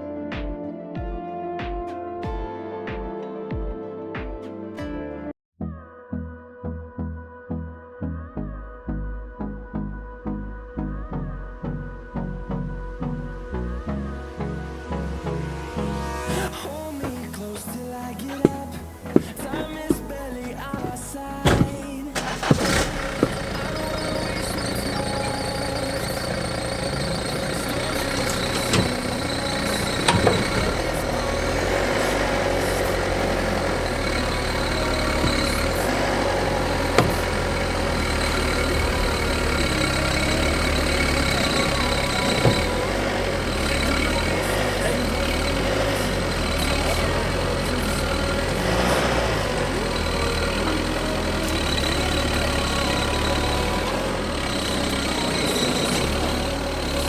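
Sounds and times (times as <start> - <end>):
car engine idling: 16.4 - 57.0
sharp knocks and clanks: 18.3 - 31.5, 34.8 - 37.8.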